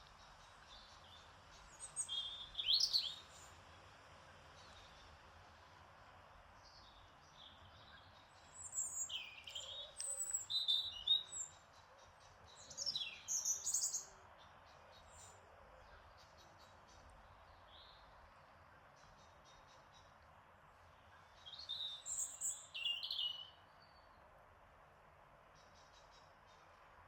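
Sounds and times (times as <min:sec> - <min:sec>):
faint outdoor hiss: 0:00.0 - 0:27.0
songbirds chirping: 0:00.0 - 0:27.0.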